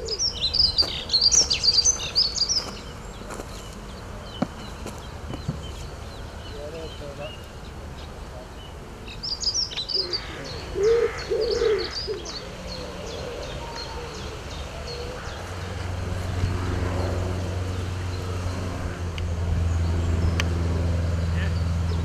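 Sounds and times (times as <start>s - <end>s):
pigeon cooing: 0.0s - 0.9s, 10.0s - 15.8s
small bird chirping: 0.0s - 15.5s.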